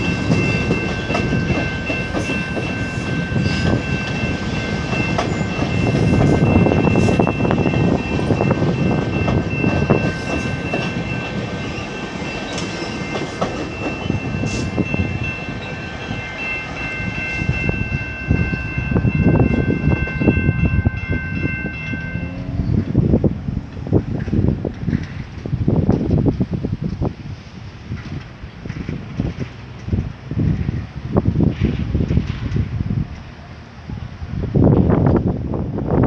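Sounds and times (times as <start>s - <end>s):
wheel clatter over rail joints: 0.0s - 33.3s
train rumbling past: 0.0s - 36.0s.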